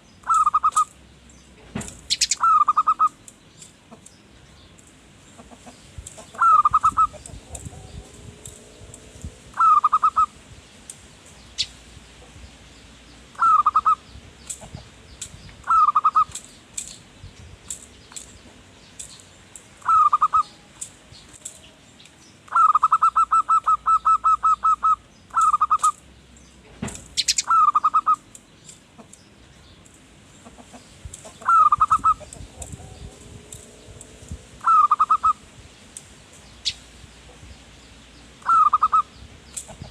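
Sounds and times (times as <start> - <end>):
small birds chirping: 0.0 - 39.9
dove cooing: 0.2 - 0.9, 2.1 - 3.2, 5.4 - 10.4, 13.3 - 14.0, 15.6 - 16.4, 19.8 - 20.7, 22.5 - 26.0, 27.2 - 28.3, 30.5 - 35.5, 38.4 - 39.1.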